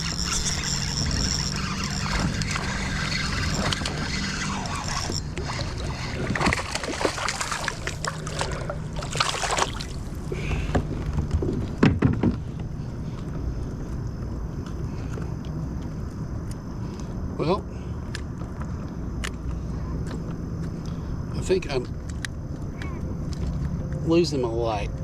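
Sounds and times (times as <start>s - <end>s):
low hum: 0.0s - 17.1s
water splashing around a kayak: 1.6s - 10.4s.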